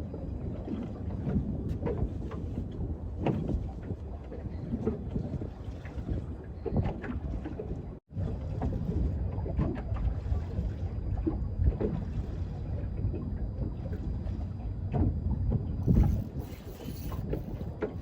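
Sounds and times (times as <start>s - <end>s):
wind rumble on microphone: 0.0s - 18.0s
knocks on boat: 3.2s - 3.7s.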